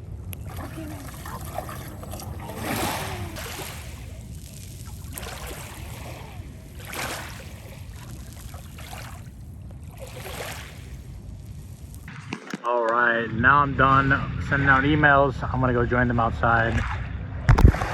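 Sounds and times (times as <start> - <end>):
lake water lapping: 0.0 - 12.1
steady low rumble: 0.0 - 12.2, 13.0 - 17.9.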